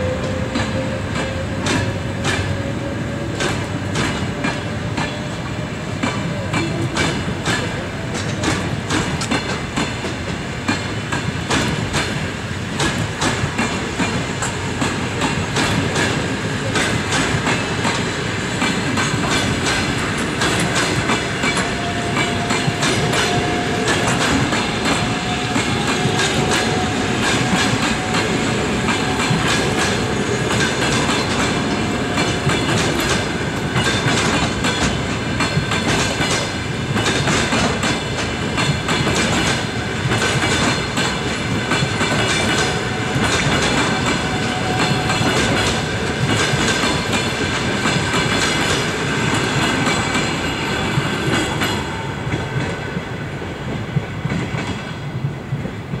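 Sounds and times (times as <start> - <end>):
train wheels clattering over rail joints: 0.0 - 56.0.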